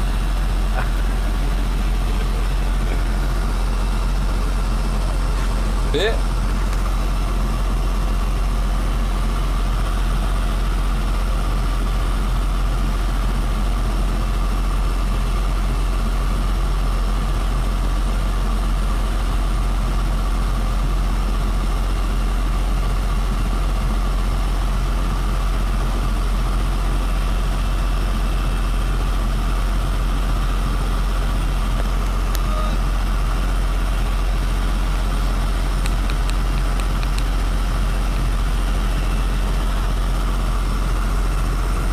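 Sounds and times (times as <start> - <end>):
diesel engine drone: 0.0 - 41.9
faint high whine: 31.9 - 33.0.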